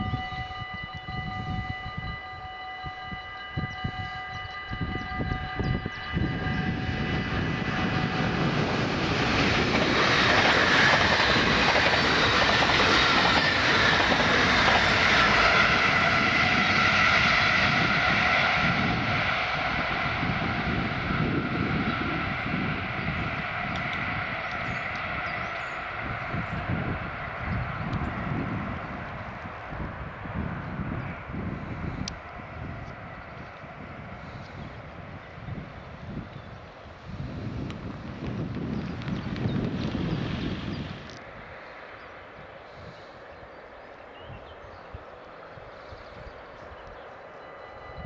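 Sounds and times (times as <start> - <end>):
level-crossing warning bell: 0.0 - 7.7, 47.3 - 48.0
electric train passing at speed: 0.0 - 48.0.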